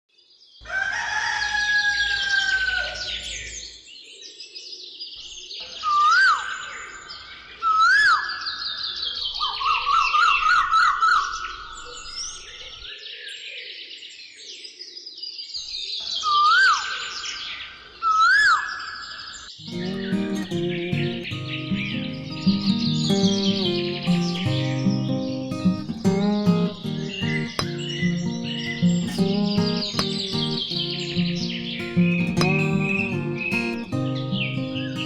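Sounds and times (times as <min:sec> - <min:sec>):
birds chirping and trilling: 0:00.6 - 0:35.0
upswept bird whistle: 0:18.1 - 0:35.0
rapid bird trill: 0:19.6 - 0:35.0.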